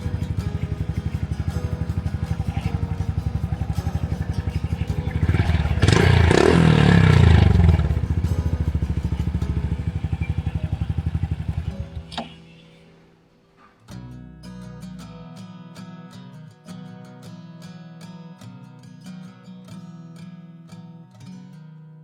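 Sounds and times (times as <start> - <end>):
motorcycle engine revving: 0.0 - 12.4
motorcycle engine idling: 0.0 - 12.6.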